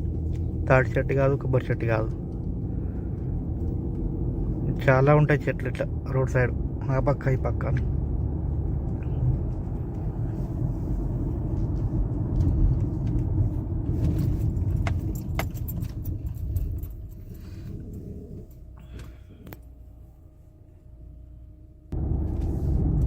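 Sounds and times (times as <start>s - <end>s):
car engine and tyre rumble: 0.0s - 23.0s
sharp clicks and rattles: 11.4s - 17.4s.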